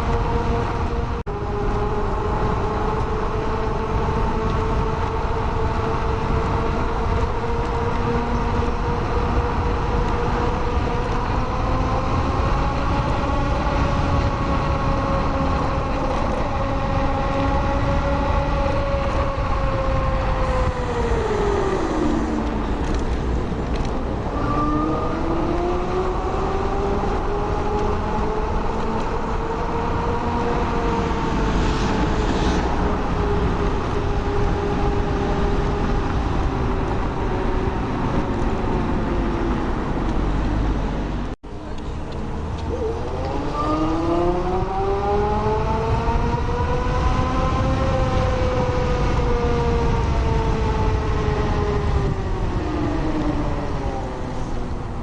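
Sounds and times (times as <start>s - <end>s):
electric scooter motor whine: 0.0s - 40.8s, 41.5s - 55.0s
tyre and wind rumble: 0.0s - 55.0s.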